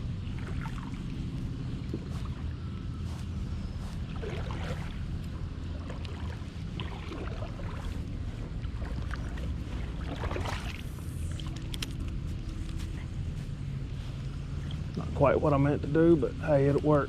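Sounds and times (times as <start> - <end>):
creek water rumble: 0.0 - 17.0
small clicks and splashes: 4.2 - 8.0, 8.6 - 12.2.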